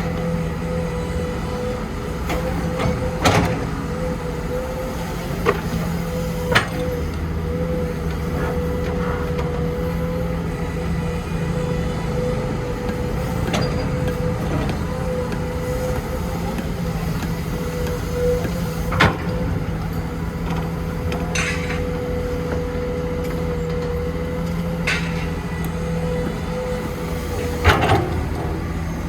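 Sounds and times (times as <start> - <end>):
diesel machinery running: 0.0 - 29.0
sharp knocks and clanks: 21.1 - 21.9, 24.8 - 25.3.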